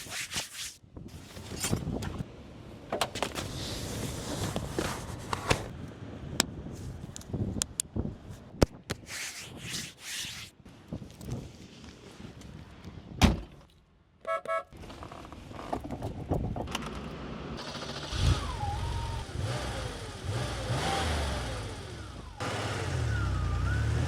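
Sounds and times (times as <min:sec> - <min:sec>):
car engine revving: 0:17.6 - 0:24.0.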